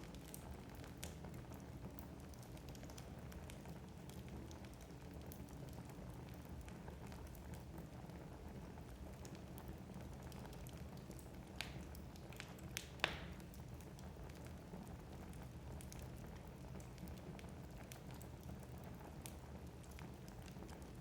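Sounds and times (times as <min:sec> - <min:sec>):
logs crackling and popping: 0:09.1 - 0:21.0.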